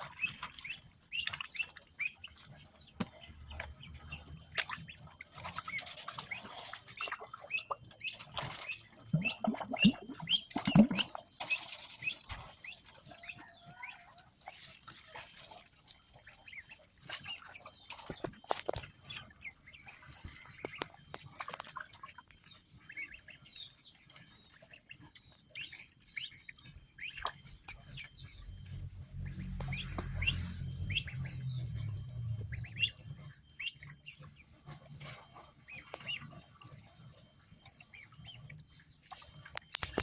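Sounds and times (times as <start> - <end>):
ducklings peeping: 0.0 - 40.0
low hum: 26.8 - 36.1.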